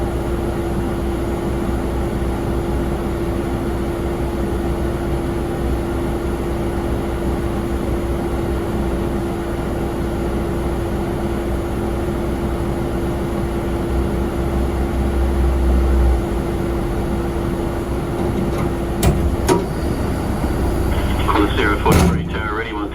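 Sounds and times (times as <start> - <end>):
jet airliner engine drone: 11.5 - 22.9
deep rumble: 14.5 - 22.9.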